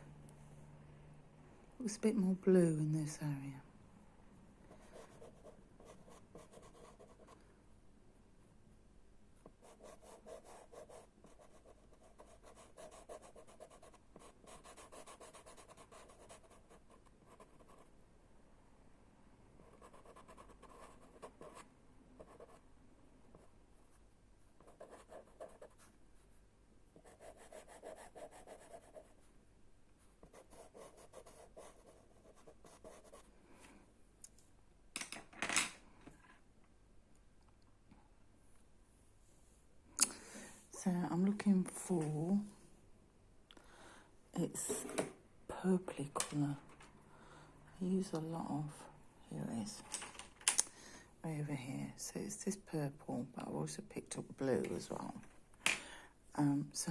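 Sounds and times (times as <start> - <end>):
chalk pastels scratching on paper: 9.4 - 17.9, 27.0 - 29.3, 30.1 - 33.3.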